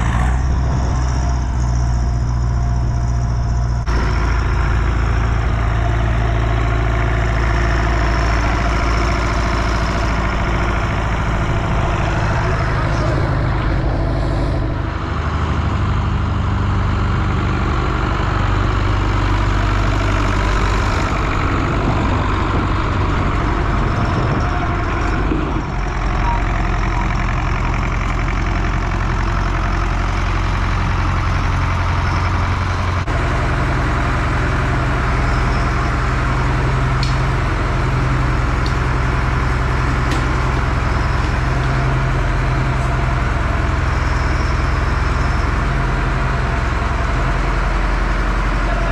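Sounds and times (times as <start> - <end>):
heavy vehicle engine idling: 0.0 - 48.9.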